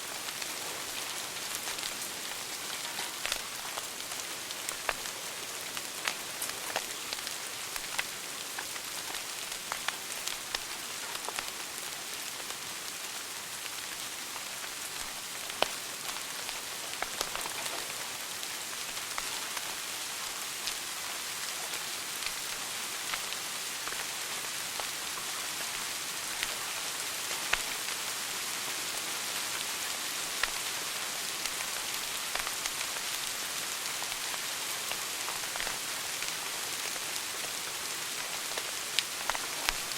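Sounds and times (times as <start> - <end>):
wood fire crackling and popping: 0.1 - 13.0, 13.6 - 24.1, 25.7 - 27.9, 30.3 - 30.7, 31.4 - 39.9.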